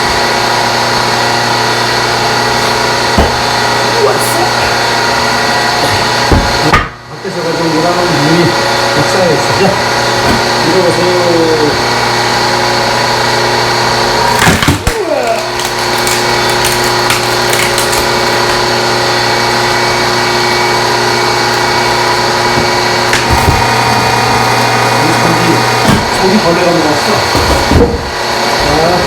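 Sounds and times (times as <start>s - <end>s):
hydraulic log splitter humming: 0.0s - 29.0s
log cracking loudly: 14.3s - 20.1s.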